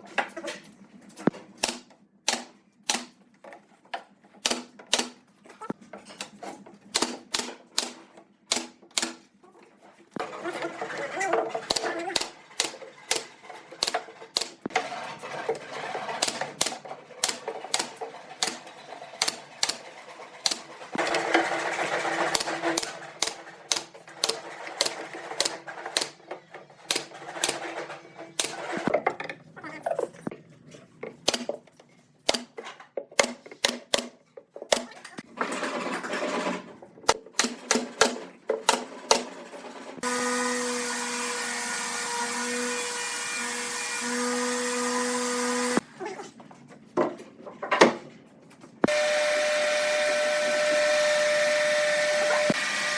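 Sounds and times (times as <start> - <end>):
power tool running: 40.0 - 45.8, 48.8 - 52.9.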